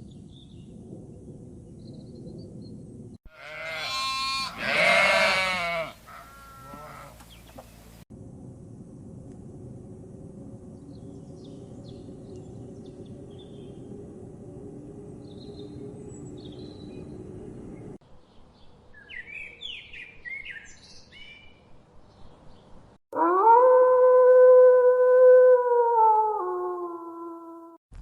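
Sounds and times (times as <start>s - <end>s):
small birds chirping: 7.2s - 8.0s
loud rising howl: 8.2s - 18.0s.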